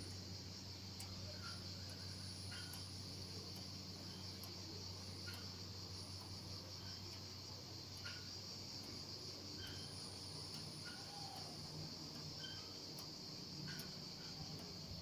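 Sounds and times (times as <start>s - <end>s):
high insect chorus: 0.0s - 15.0s
creaking swing squeaks: 9.6s - 13.0s, 13.6s - 15.0s.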